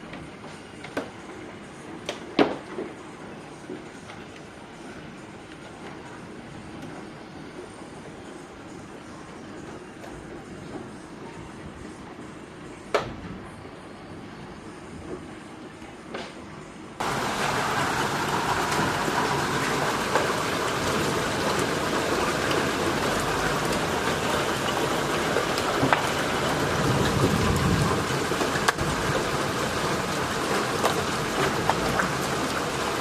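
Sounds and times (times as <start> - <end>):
heavy rain pouring: 17.0 - 33.0.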